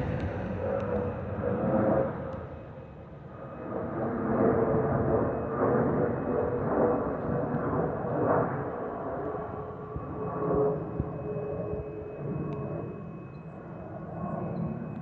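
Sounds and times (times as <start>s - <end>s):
jet rushing rumble: 0.0s - 2.6s.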